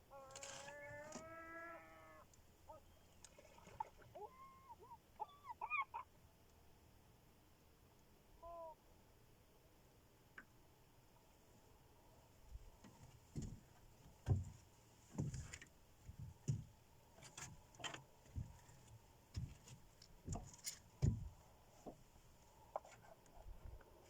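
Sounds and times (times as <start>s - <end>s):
dull knocks and thuds: 14.2s - 14.6s, 16.1s - 16.7s, 19.3s - 22.0s.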